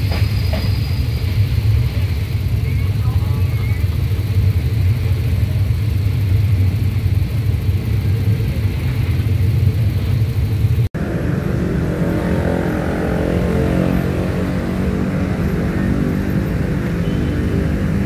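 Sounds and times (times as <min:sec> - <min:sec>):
engine drone: 0:00.0 - 0:18.0
train wheels rumbling on track: 0:00.0 - 0:18.0.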